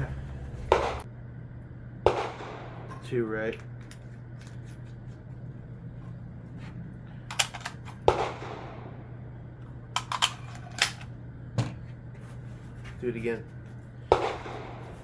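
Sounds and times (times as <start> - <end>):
steady low hum: 0.0 - 15.0
sharp ringing crack: 0.7 - 1.1, 2.1 - 3.3, 8.0 - 9.2
rifle handling clicks: 7.3 - 8.0, 10.0 - 11.1.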